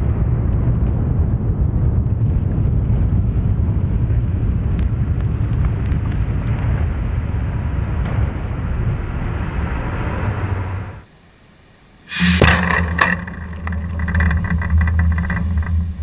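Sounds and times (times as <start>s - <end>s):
low hum: 9.7s - 16.0s
low machine noise: 10.1s - 16.0s
sharp impacts: 12.1s - 16.0s.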